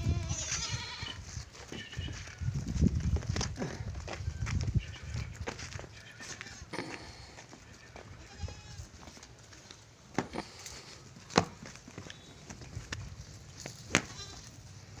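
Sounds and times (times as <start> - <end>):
goat bleat: 0.0 - 2.3, 3.6 - 9.0, 13.9 - 14.5.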